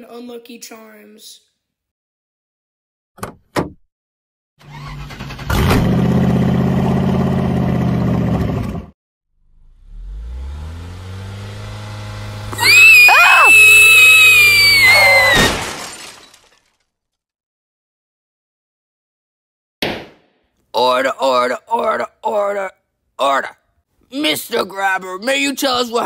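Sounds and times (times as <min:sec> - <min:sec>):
car engine starting and running: 0:04.6 - 0:12.9
high-pitched scream: 0:12.6 - 0:15.6.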